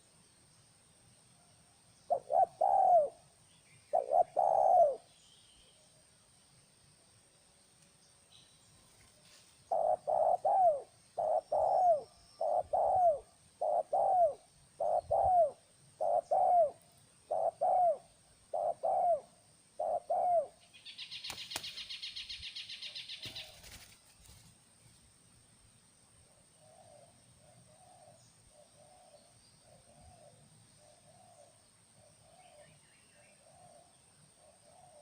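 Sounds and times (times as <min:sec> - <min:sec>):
dove cooing: 0:02.1 - 0:03.2, 0:03.9 - 0:05.1, 0:09.7 - 0:21.1, 0:26.6 - 0:32.7, 0:33.3 - 0:35.0.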